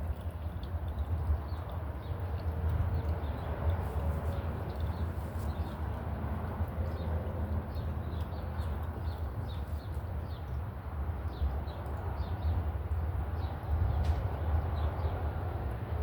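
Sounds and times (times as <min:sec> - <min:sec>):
small birds chirping: 0:01.0 - 0:06.1, 0:06.8 - 0:12.6.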